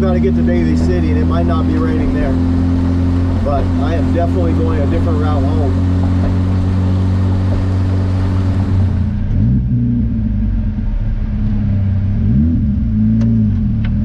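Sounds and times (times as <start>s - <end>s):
car engine droning: 0.0s - 14.0s.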